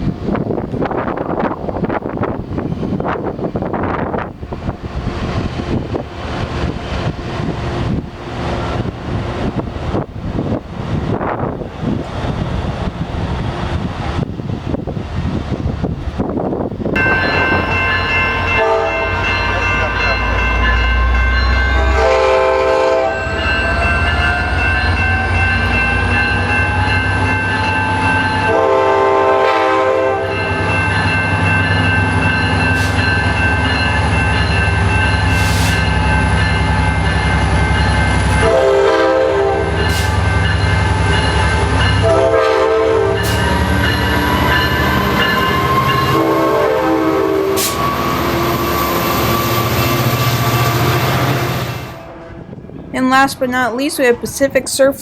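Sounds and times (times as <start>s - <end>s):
locomotive air horn blasts: 18.6s - 19.2s, 21.7s - 23.6s, 28.4s - 30.4s, 38.3s - 40.2s, 42.0s - 43.5s, 46.0s - 47.8s.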